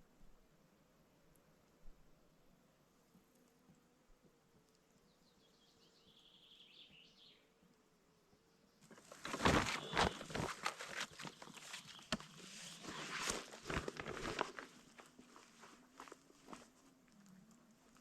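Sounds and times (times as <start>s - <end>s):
rustling and crunching: 8.8s - 18.0s.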